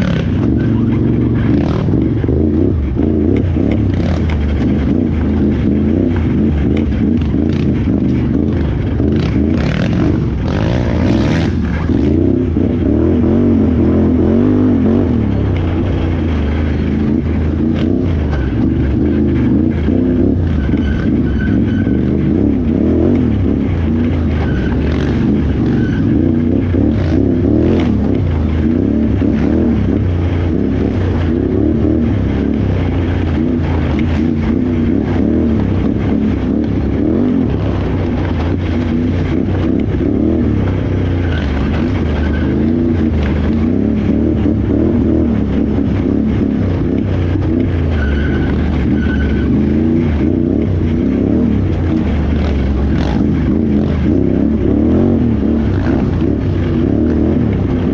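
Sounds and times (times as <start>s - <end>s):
atv engine revving: 0.0s - 57.9s.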